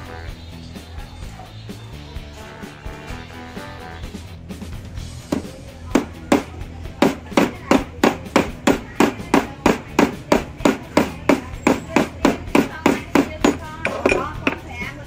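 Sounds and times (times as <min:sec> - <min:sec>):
hammer blows on steel wire: 0:05.3 - 0:14.7.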